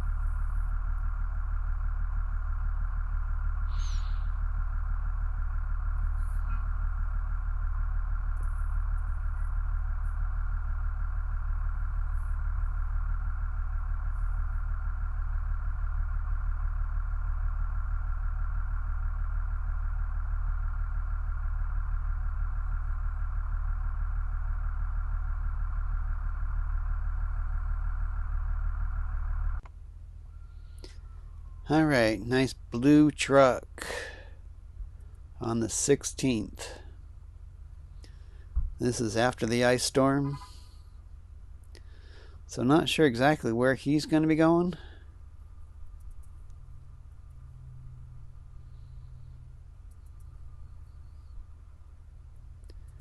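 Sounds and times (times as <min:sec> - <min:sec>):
vehicle engine idling: 0:00.0 - 0:53.0.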